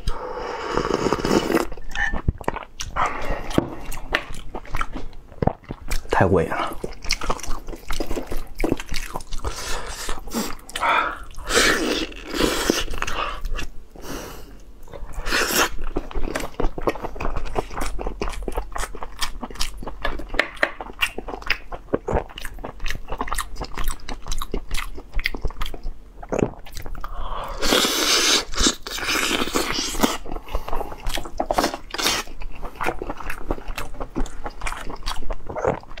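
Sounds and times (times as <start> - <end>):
chewing meat with wet smacks: 1.7 - 11.4, 15.7 - 27.1, 28.6 - 36.0.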